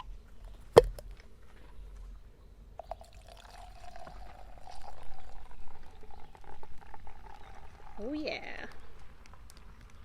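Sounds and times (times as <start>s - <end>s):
beverage pouring into cup: 2.8s - 9.6s.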